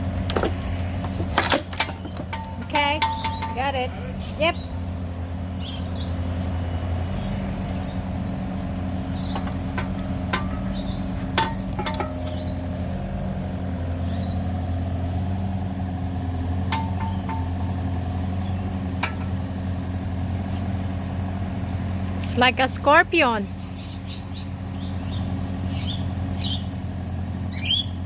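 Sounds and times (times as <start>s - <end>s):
diesel engine running: 0.0s - 28.0s
metallic clinks and knocks: 1.8s - 3.8s, 9.4s - 12.5s, 16.7s - 17.6s.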